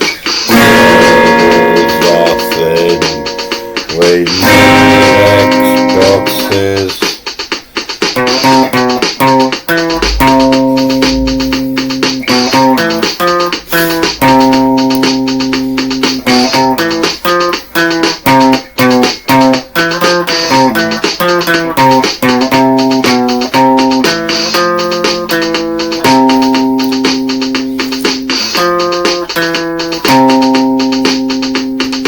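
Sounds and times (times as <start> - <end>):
plucked guitar: 0.0 - 7.3, 8.0 - 32.0
bass line: 0.5 - 6.5, 8.2 - 13.0.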